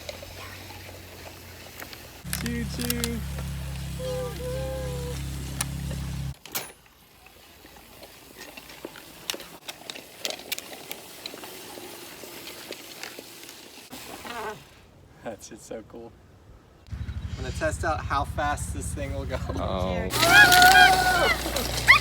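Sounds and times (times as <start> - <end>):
electric motor humming: 2.3 - 6.4, 19.6 - 22.0.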